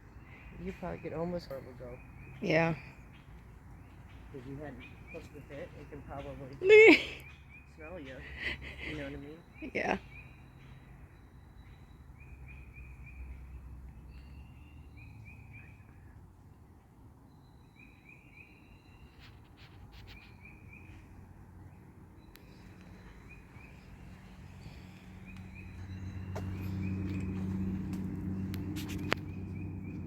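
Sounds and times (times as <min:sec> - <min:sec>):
songbird singing: 0:00.0 - 0:30.0
low engine hum: 0:20.5 - 0:30.0
low outdoor rumble: 0:21.1 - 0:30.0.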